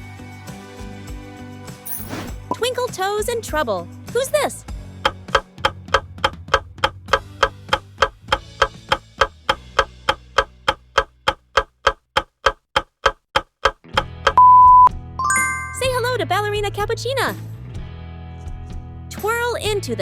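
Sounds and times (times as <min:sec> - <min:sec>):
clock ticking: 0:05.0 - 0:14.9
electronic beep: 0:14.4 - 0:16.0.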